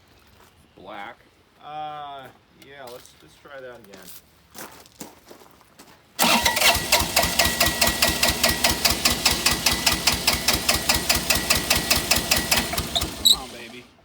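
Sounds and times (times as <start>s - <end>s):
diesel engine cranking: 6.2s - 14.0s
starter motor whine: 6.2s - 14.0s.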